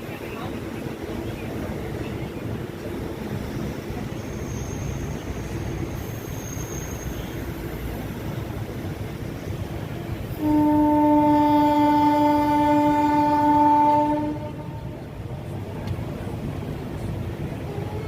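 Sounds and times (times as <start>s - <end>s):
moving train rumble: 0.0s - 18.0s
train horn blast: 10.4s - 15.0s.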